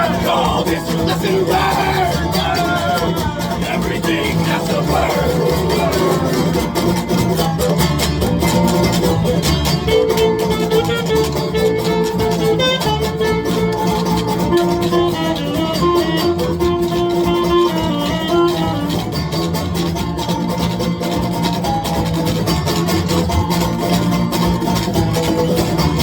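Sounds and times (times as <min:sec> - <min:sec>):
clicking percussion beat: 0:00.0 - 0:17.1
plucked strings: 0:00.0 - 0:26.0.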